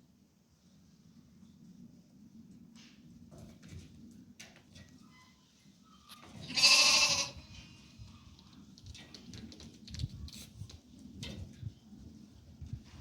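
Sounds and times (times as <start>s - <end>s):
sheep or goat bleating: 6.4s - 7.5s.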